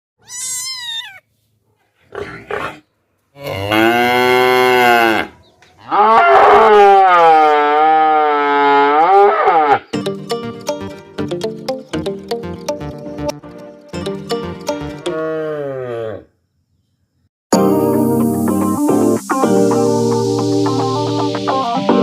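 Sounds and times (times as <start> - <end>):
cow mooing: 3.4 - 9.9
plucked music: 9.9 - 15.2, 17.5 - 22.0.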